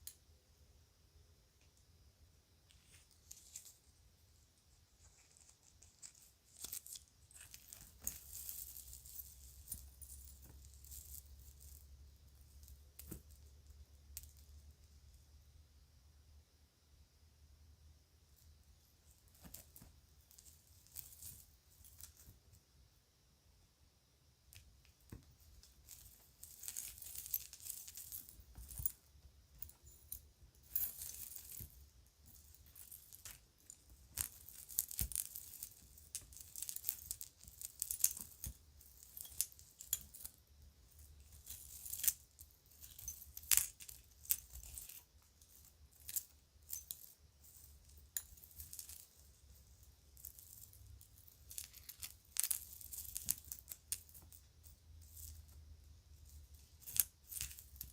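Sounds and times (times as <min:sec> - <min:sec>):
rustling: 0:02.6 - 0:14.9, 0:18.8 - 0:22.6, 0:24.6 - 0:57.9
toy jewelry clicking and clinking: 0:05.0 - 0:14.9, 0:24.5 - 0:57.9.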